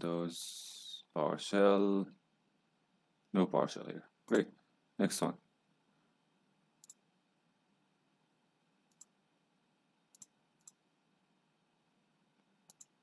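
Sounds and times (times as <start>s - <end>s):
faint computer mouse clicks: 6.8s - 7.0s, 8.9s - 9.1s, 10.1s - 10.8s, 12.7s - 13.0s.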